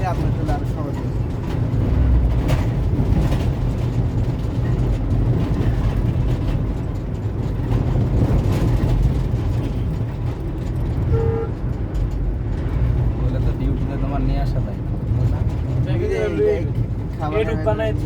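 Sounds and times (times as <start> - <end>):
vehicle engine and tyres rumbling: 0.0 - 18.0
short horn beep: 11.1 - 11.6.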